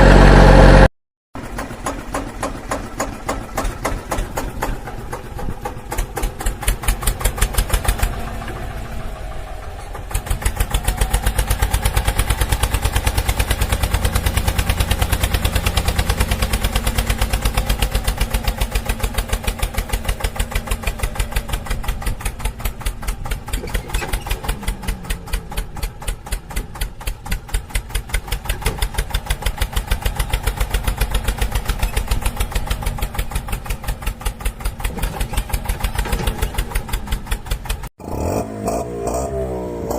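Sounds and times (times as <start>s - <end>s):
small tractor engine chugging: 1.4s - 37.9s.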